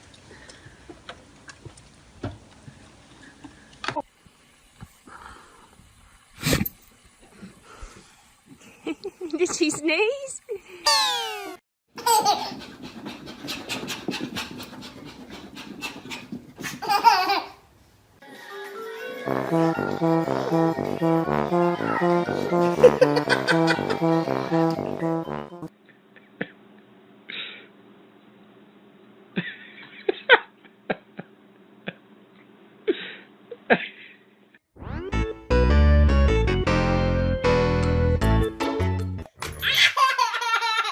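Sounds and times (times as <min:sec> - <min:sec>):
baby squealing and laughing: 0:10.8 - 0:12.7, 0:39.6 - 0:40.9
dog panting: 0:12.4 - 0:16.8
cheerful keyboard music: 0:19.2 - 0:25.7, 0:34.8 - 0:39.3.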